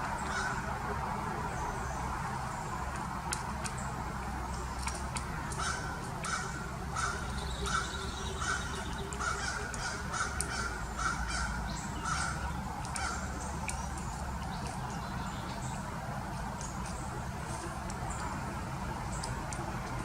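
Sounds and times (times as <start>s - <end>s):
bird harsh calls: 5.5s - 13.9s.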